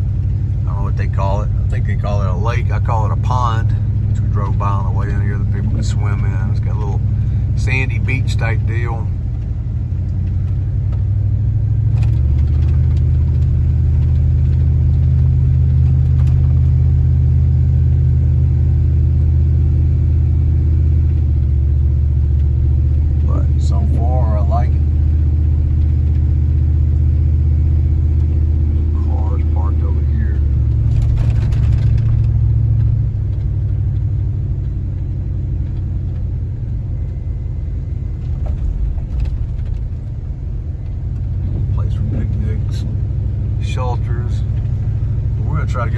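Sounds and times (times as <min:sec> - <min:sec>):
car engine and tyre rumble in cabin: 0:00.0 - 0:45.9.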